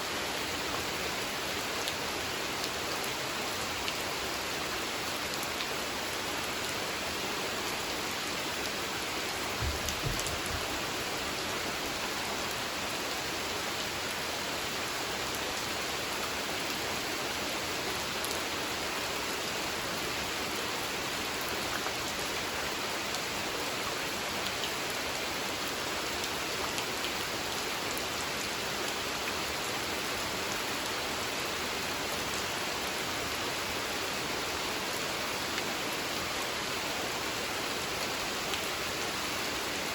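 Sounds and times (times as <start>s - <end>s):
rain falling on a pond: 0.0s - 39.9s
low thuds: 9.6s - 10.8s.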